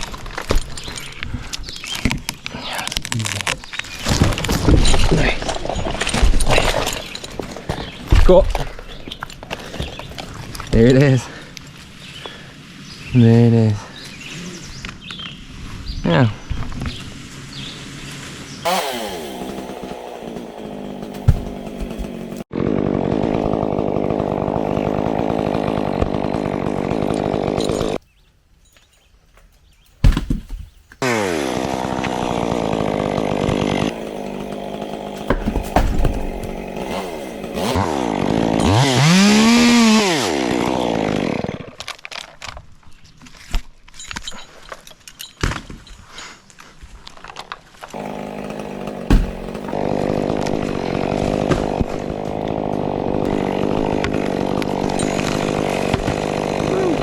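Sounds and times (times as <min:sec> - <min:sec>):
chainsaw cutting wood: 0:03.3 - 0:11.1, 0:18.6 - 0:28.0, 0:31.0 - 0:42.3, 0:47.8 - 0:57.0.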